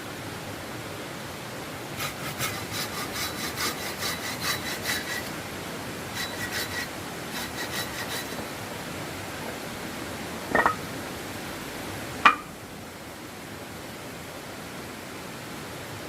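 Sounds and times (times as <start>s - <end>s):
hand saw cutting wood: 2.0s - 5.4s, 6.1s - 8.6s.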